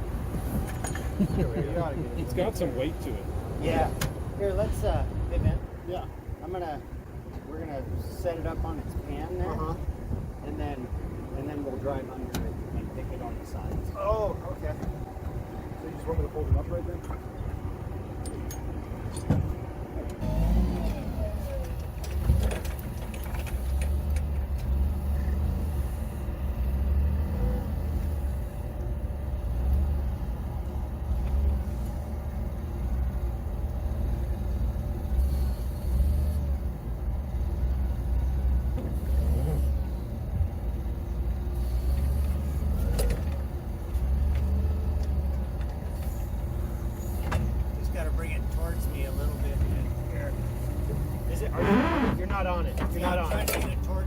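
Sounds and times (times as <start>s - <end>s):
forklift engine running: 12.2s - 54.0s.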